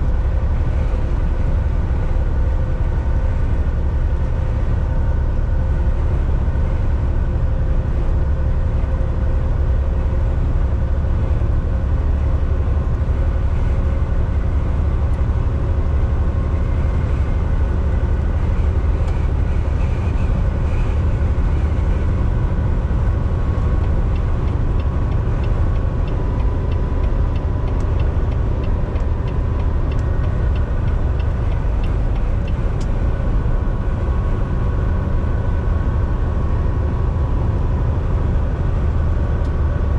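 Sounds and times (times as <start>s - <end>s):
truck engine drone and road rumble: 0.0s - 39.9s
regular ticks: 23.8s - 33.0s.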